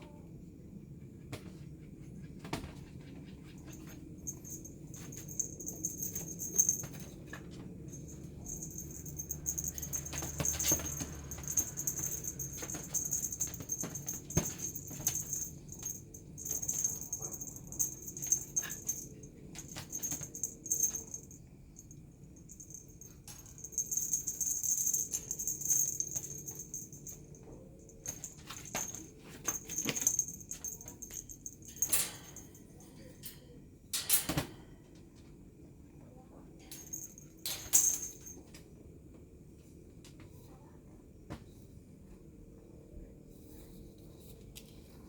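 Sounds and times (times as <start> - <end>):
high rustling or jingling: 3.4 - 32.8, 36.7 - 38.4.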